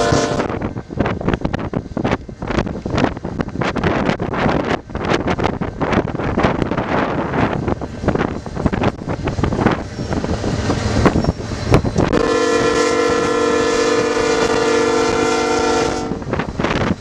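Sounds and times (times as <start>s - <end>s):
locomotive horn blast: 0.0s - 0.6s, 12.1s - 16.3s
wind buffeting microphone: 0.0s - 17.0s.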